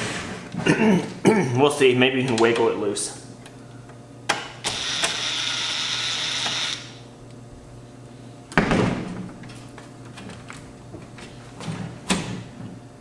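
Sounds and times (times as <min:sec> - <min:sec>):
power screwdriver running: 0:04.7 - 0:07.0.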